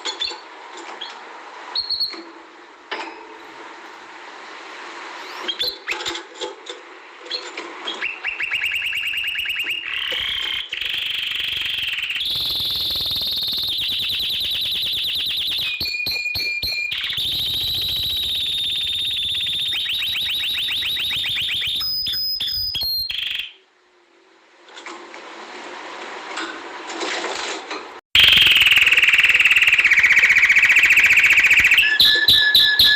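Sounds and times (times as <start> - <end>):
canary singing trills: 8.0 - 23.6, 28.2 - 32.9.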